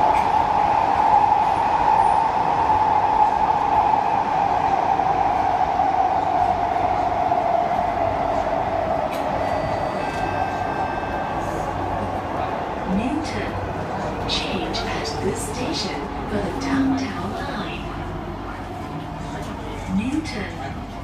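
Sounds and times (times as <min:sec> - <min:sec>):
metro train running noise: 0:00.0 - 0:21.0.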